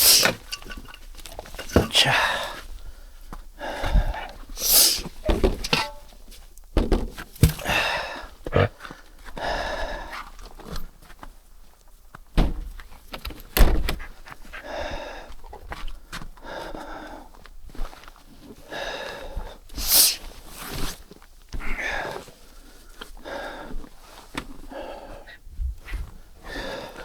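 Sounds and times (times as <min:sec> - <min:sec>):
man panting: 0:01.6 - 0:05.1, 0:07.5 - 0:10.1, 0:18.7 - 0:20.2
knocks and thuds: 0:06.8 - 0:07.7.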